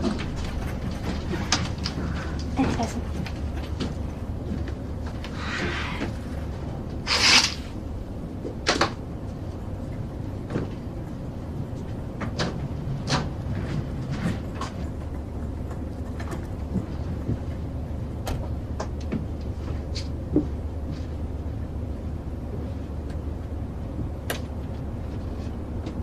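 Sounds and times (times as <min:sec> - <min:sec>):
airliner cabin hum: 0:00.0 - 0:26.0
sharp clicks and knocks: 0:11.8 - 0:17.6.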